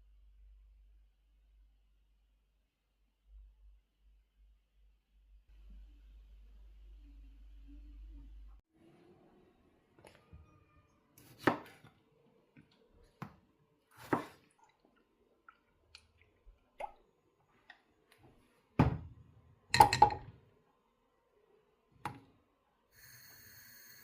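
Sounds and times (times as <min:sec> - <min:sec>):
kitchenware knocking and clattering: 0:19.7 - 0:20.4.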